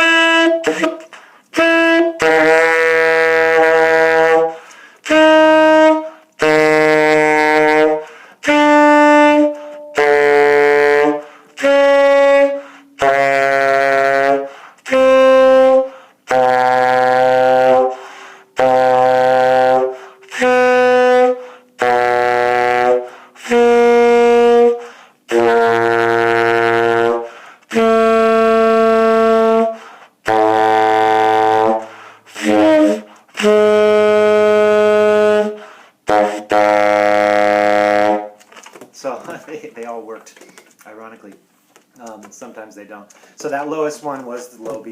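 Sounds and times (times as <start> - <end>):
saxophone long tones: 0.0 - 38.4
player breathing: 4.6 - 5.0, 8.0 - 8.4, 14.5 - 14.8, 18.0 - 18.5, 24.8 - 25.2, 27.3 - 27.7, 29.8 - 30.2, 31.8 - 32.3, 35.6 - 36.0, 43.1 - 43.4.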